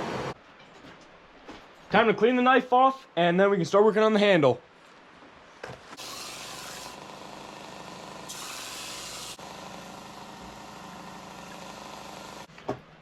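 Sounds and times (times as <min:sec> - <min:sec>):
belt sander motor running: 0:06.0 - 0:12.5
blade hissing against sanding belt: 0:08.3 - 0:09.4.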